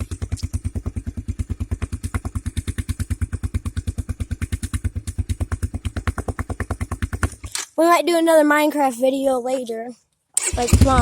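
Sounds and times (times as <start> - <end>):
dirt bike engine idling: 0.0 - 7.6, 10.4 - 11.0.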